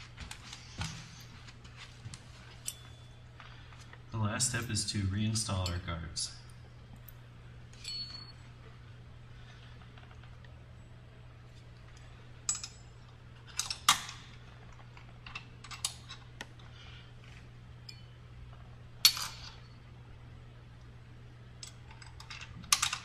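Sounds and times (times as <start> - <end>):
steady low hum: 0.0 - 23.0
metallic clinks of hand tools: 7.8 - 8.4.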